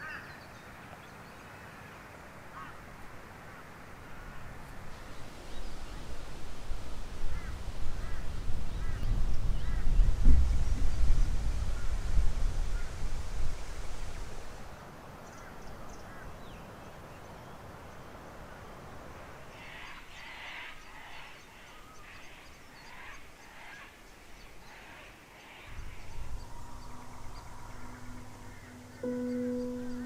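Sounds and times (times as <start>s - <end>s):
faint outdoor background: 0.0s - 30.0s
bird calling: 25.6s - 30.0s
soft music with held notes: 26.0s - 30.0s.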